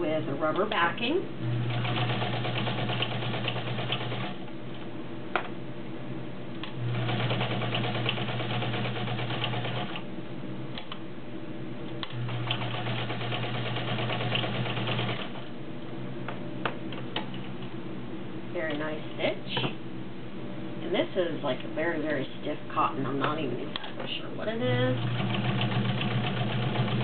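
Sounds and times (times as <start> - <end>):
sewing machine stitching: 1.7 - 4.4, 6.9 - 10.0, 25.0 - 27.0.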